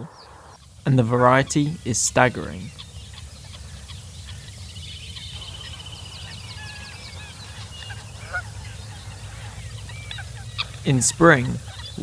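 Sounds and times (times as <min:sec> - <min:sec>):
steady low rumble: 0:00.0 - 0:12.0
waterfowl calling: 0:00.0 - 0:12.0.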